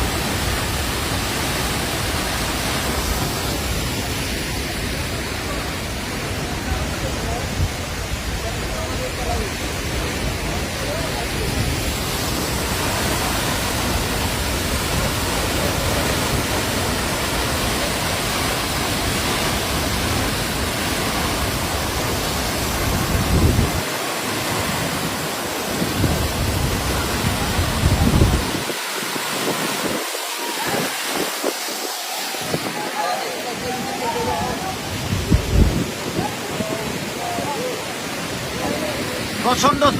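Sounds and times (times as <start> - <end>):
waterfall rushing: 0.0 - 39.9
wind buffeting microphone: 18.4 - 33.0, 33.6 - 39.0.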